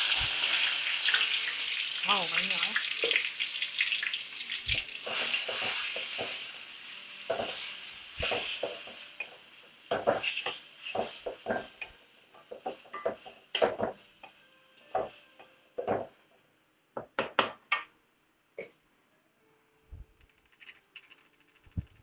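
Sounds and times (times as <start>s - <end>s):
paste sizzling in hot oil: 0.0s - 14.3s
spatula scraping and knocking wok: 4.7s - 6.6s, 7.2s - 16.1s.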